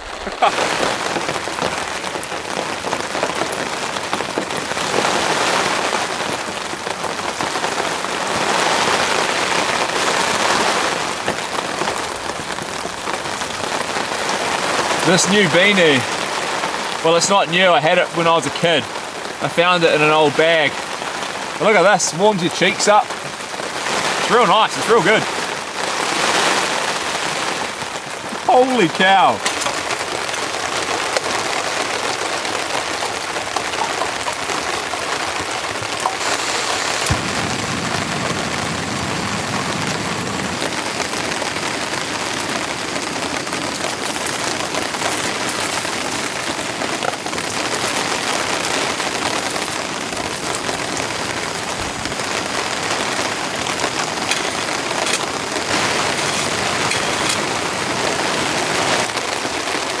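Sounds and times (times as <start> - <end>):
heavy rain falling: 0.0 - 60.0.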